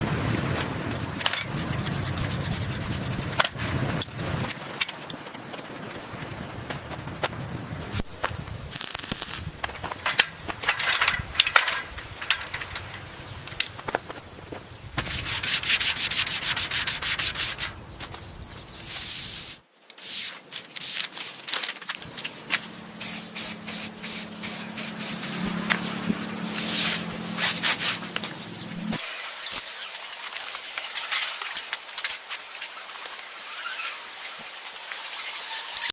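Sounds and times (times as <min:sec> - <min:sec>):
rubbing and scraping: 0:01.0 - 0:04.8, 0:13.8 - 0:17.8, 0:18.7 - 0:35.9
spray paint hissing: 0:01.5 - 0:03.4, 0:08.7 - 0:09.5, 0:18.8 - 0:21.4, 0:23.0 - 0:25.5, 0:26.5 - 0:28.2.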